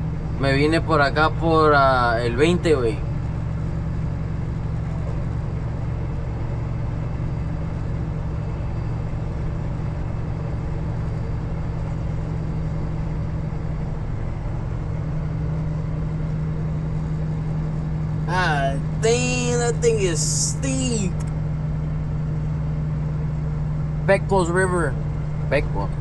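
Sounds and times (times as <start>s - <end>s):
truck diesel engine droning: 0.0s - 26.0s.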